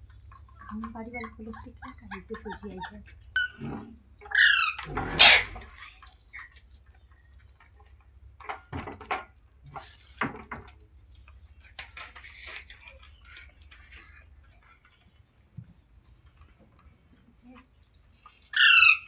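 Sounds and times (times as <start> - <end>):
parrot chirps and clicks: 18.4 - 19.0.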